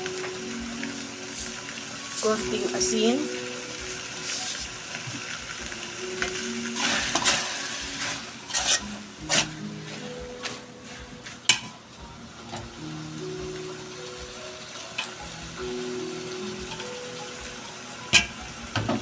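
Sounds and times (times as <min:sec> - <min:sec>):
food sizzling in a pan: 0:00.0 - 0:19.0
utensil scraping and knocking on pan: 0:08.0 - 0:10.6.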